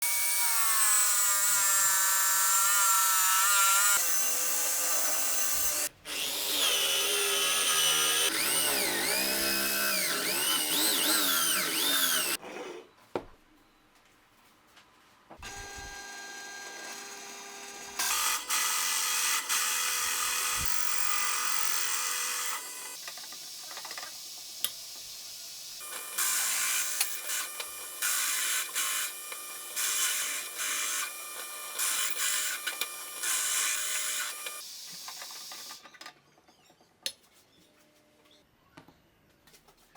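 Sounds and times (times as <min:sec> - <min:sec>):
power tool motors whining: 0:00.2 - 0:12.4, 0:15.4 - 0:23.0, 0:25.8 - 0:35.8.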